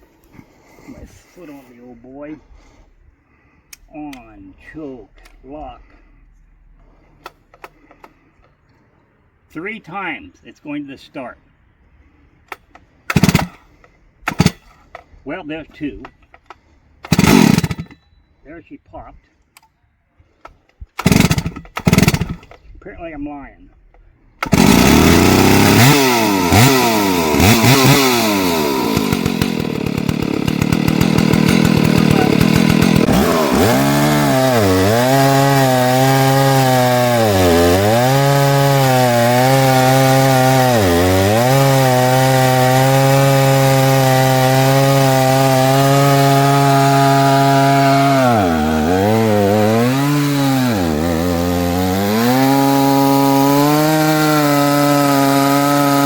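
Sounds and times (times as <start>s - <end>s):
chainsaw revving: 13.1s - 13.6s, 14.3s - 14.6s, 17.0s - 18.0s, 21.0s - 22.5s, 24.4s - 56.0s
chainsaw cutting through log: 13.1s - 14.7s, 16.5s - 18.0s, 21.0s - 22.5s, 24.4s - 56.0s.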